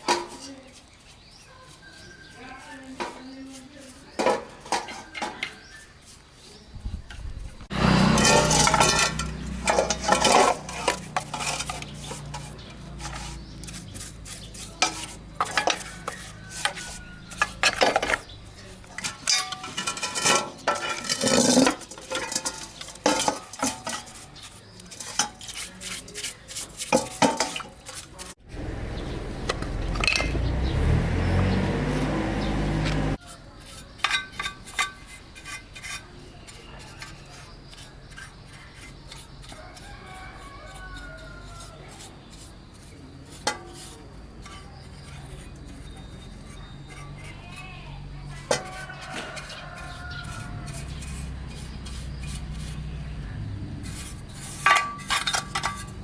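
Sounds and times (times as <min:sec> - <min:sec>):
metal parts and tools clinking: 0:07.8 - 0:28.4, 0:29.5 - 0:30.6, 0:34.0 - 0:36.0, 0:53.8 - 0:56.0.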